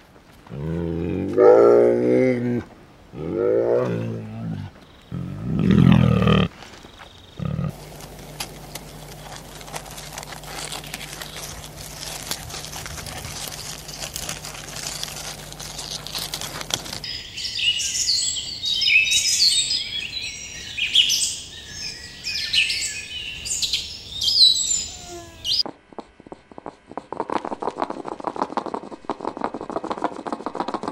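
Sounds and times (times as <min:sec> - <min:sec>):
steady low hum: 0:07.3 - 0:17.1
birds chirping and singing: 0:07.3 - 0:25.6
crackly noise with clicks: 0:07.7 - 0:17.1, 0:25.6 - 0:30.9.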